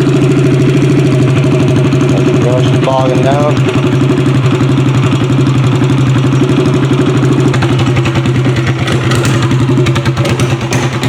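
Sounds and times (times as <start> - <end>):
small gas engine bogging down: 0.0 - 11.0.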